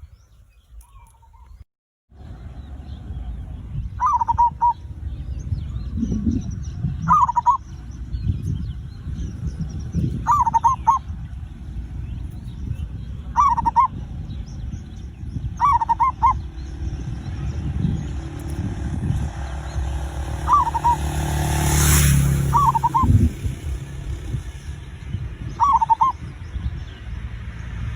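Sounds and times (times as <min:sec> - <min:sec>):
low rumble: 0:02.2 - 0:27.9
dove cooing: 0:04.0 - 0:04.8, 0:07.1 - 0:07.6, 0:10.2 - 0:11.1, 0:13.3 - 0:14.0, 0:15.5 - 0:16.8, 0:19.6 - 0:24.3, 0:25.6 - 0:26.2
rush of noise: 0:13.0 - 0:27.9.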